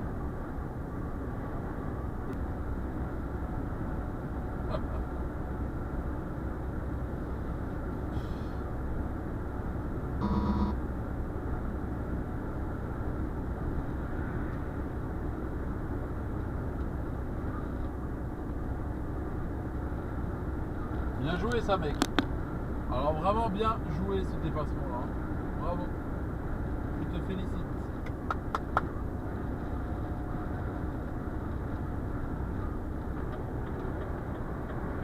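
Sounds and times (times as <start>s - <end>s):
truck engine and road noise: 0.0s - 35.0s
beep tone: 10.2s - 10.8s.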